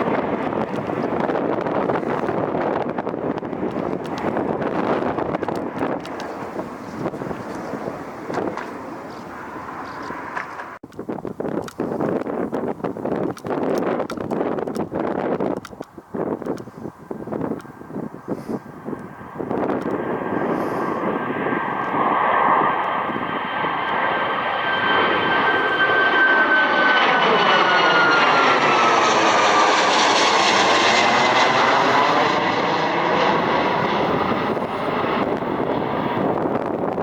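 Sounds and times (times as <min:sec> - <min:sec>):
jet engine whine: 0:00.0 - 0:37.0
jet engines roaring: 0:00.0 - 0:37.0.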